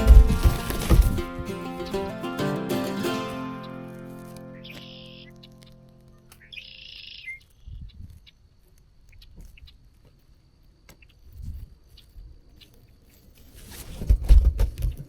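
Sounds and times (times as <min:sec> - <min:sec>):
bird harsh raspy call: 0:06.4 - 0:07.4.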